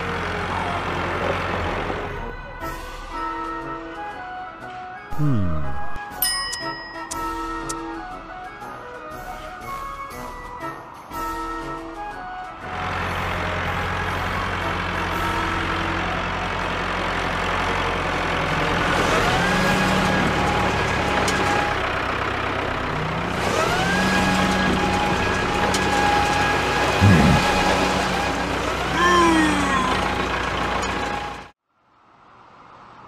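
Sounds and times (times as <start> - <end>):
truck engine revving: 12.9 - 31.5.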